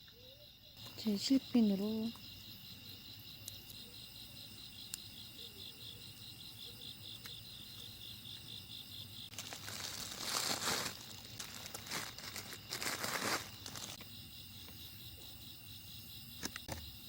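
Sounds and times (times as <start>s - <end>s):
insects chirping: 0.0s - 17.0s
crinkling rustles: 9.3s - 14.0s.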